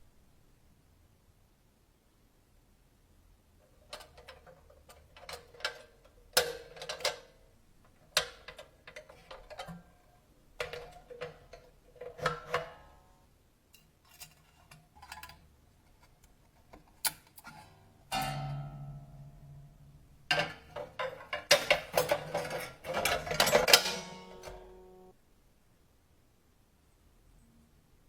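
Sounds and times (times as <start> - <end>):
cash register keys clacking: 3.9 - 7.4, 8.1 - 9.8, 20.3 - 25.1
metallic clang: 18.1 - 25.1.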